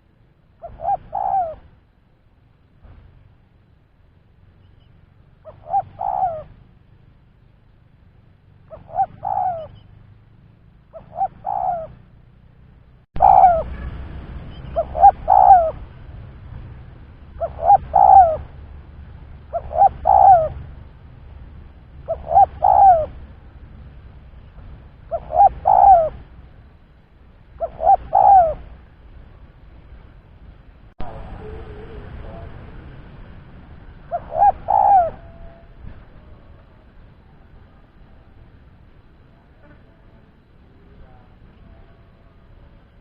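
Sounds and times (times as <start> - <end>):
dove cooing: 0.6 - 1.7, 5.4 - 6.6, 8.7 - 10.0, 10.9 - 12.1, 13.2 - 14.0, 14.6 - 16.0, 17.3 - 18.6, 19.4 - 20.7, 22.0 - 23.3, 25.1 - 26.4, 27.6 - 28.8, 34.0 - 36.7.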